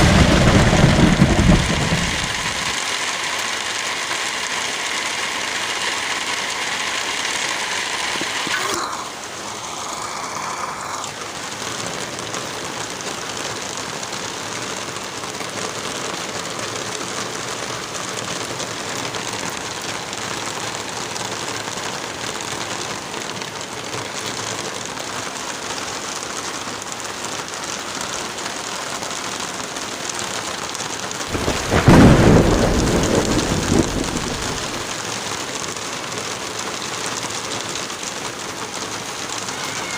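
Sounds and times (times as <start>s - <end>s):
thunder rumbling: 0.0s - 2.8s, 31.3s - 35.0s
steady rain: 0.0s - 39.9s.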